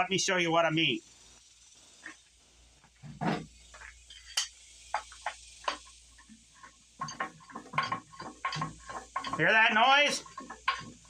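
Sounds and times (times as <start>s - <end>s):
metallic clunks and clicks: 7.0s - 9.5s.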